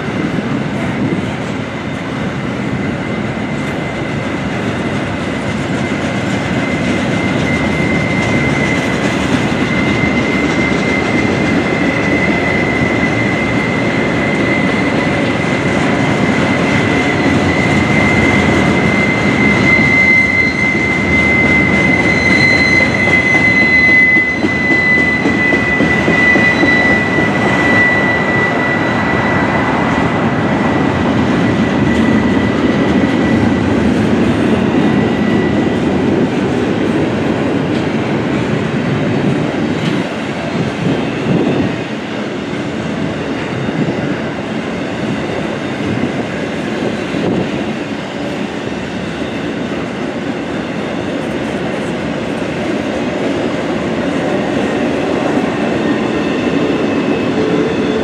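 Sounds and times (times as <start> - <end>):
train wheels clattering on track: 0.0 - 58.0
high-pitched wheel squeal: 6.6 - 36.3.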